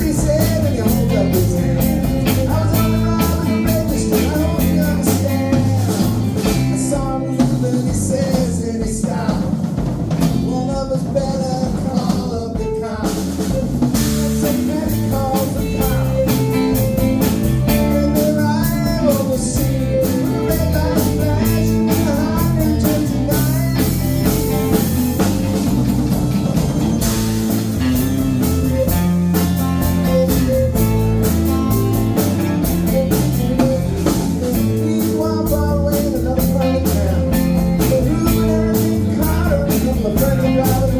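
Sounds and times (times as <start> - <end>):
person singing: 0.0 - 25.3, 27.9 - 40.9
drum kit: 0.0 - 40.9
guitar: 0.0 - 40.9.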